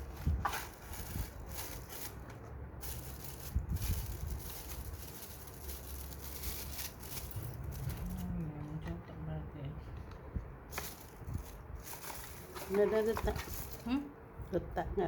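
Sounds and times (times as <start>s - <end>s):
packaging rustling: 0.0s - 8.3s, 10.7s - 13.9s.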